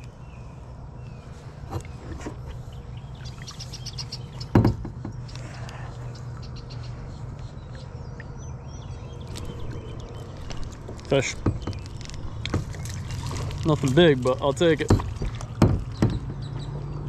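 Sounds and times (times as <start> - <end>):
low steady hum: 0.0 - 17.0
small bird chirps: 2.6 - 4.6.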